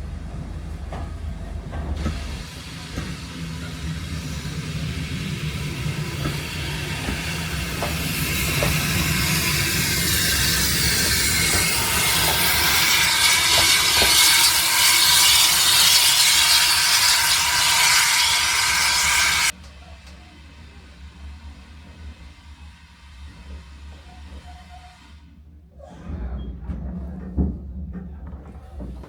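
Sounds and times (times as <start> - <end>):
steam train rumbling: 0.0 - 29.0
steam hiss: 2.0 - 19.5.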